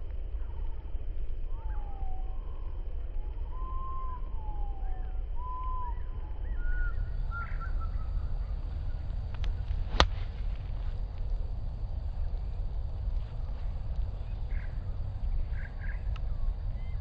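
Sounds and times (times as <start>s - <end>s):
wind rumble on microphone: 0.0s - 17.0s
birds whistling calls: 3.5s - 17.0s
golf club striking ball: 7.2s - 16.5s.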